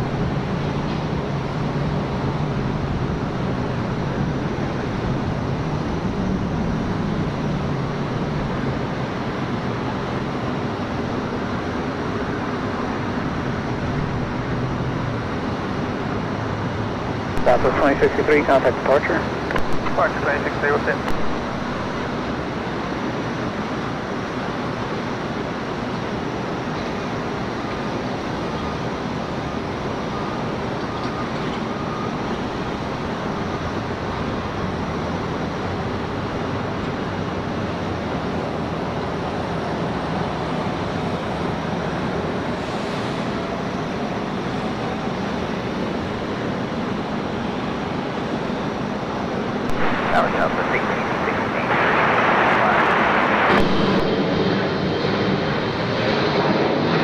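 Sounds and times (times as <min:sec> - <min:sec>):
distant jet engines roaring: 0:00.0 - 0:57.0
faint rising whine: 0:49.5 - 0:55.8.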